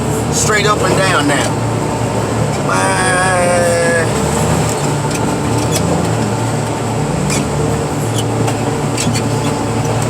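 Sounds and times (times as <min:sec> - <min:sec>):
heavy machinery engine running: 0:00.0 - 0:10.0.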